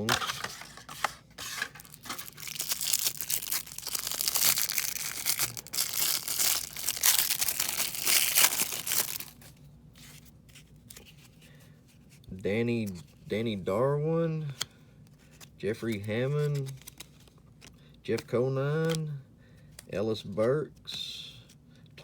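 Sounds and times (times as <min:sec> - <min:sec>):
wrapper tearing and crinkling: 0:01.6 - 0:09.5.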